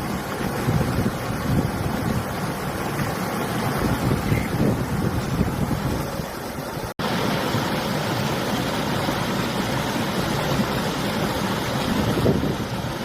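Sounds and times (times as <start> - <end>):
wind gusting on microphone: 0.0 - 6.9, 10.4 - 13.0
river water rushing: 0.0 - 13.0.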